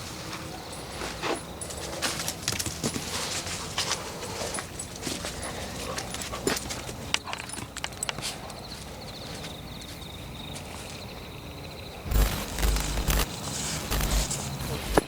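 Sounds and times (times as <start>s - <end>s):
high pulsing insect trill: 11.3s - 15.0s.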